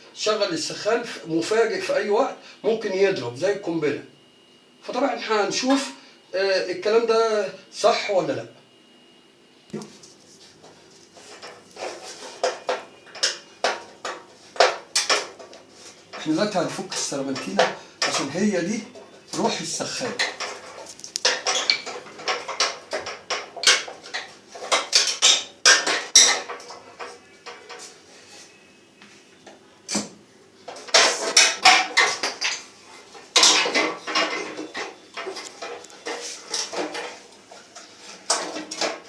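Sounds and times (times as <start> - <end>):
metal tools clinking and scraping: 10.8 - 28.4, 30.7 - 39.0.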